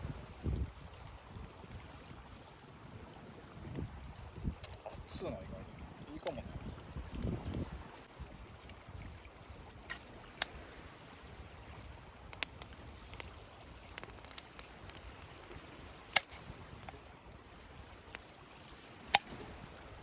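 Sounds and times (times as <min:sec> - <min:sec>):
campfire crackling: 0:00.0 - 0:20.0
sharp pops of fire: 0:09.8 - 0:19.9.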